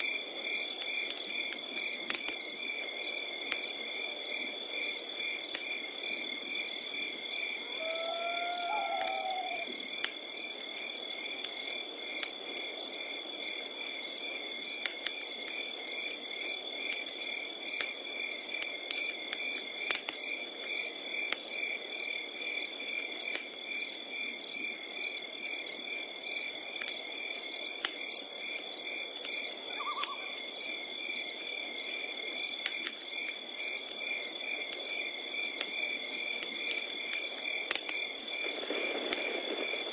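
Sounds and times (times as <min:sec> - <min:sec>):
campfire crackling and popping: 0:00.0 - 0:39.9
crickets chirping: 0:00.0 - 0:39.9
high insect trill: 0:00.5 - 0:12.1, 0:20.2 - 0:39.9
sliding animal call: 0:07.7 - 0:09.7, 0:29.7 - 0:30.4.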